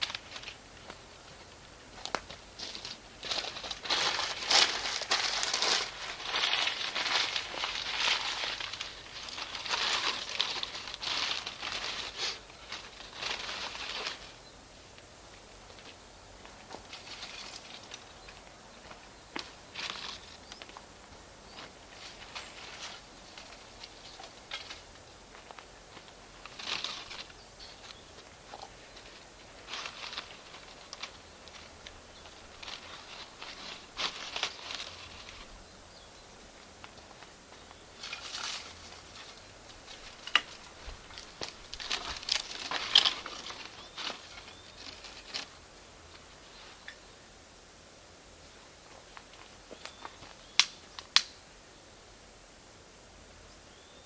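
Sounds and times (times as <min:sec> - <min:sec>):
sharp pops of burning charcoal: 0:49.7 - 0:51.4.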